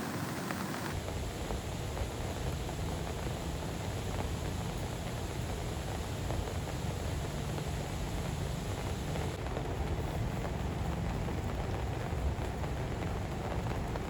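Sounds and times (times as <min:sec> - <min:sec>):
heavy rain hissing: 0:00.0 - 0:14.0
low steady rumble: 0:00.9 - 0:14.0.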